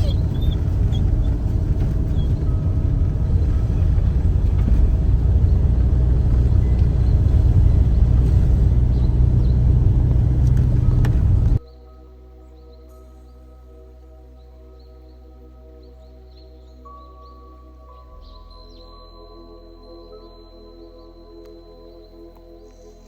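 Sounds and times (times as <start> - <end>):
vehicle engine and road noise: 0.0 - 11.6.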